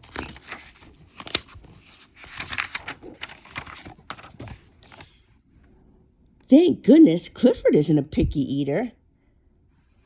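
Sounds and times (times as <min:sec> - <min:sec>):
paper or plastic crinkling: 0:00.0 - 0:05.2.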